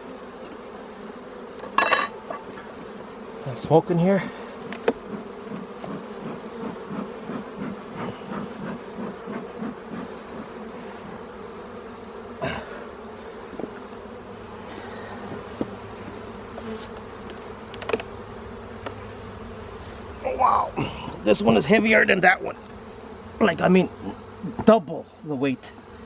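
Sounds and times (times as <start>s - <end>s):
bee smoker bellows puffing: 0.0s - 26.0s
honeybees buzzing: 0.0s - 26.0s
knocks on hive woodwork: 4.6s - 6.4s.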